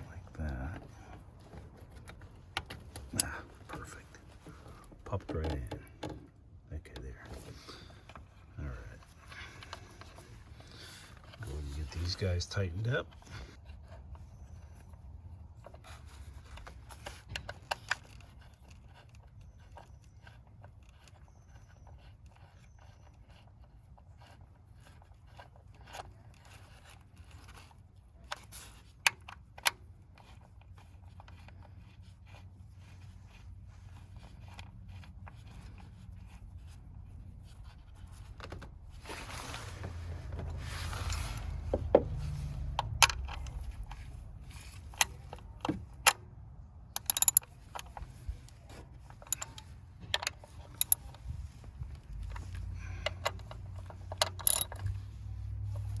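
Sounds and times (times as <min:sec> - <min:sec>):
rustling: 0:30.2 - 0:45.6
low steady rumble: 0:30.2 - 0:56.0
hand tools clicking on metal: 0:47.0 - 0:48.1, 0:49.1 - 0:51.2, 0:53.1 - 0:54.9.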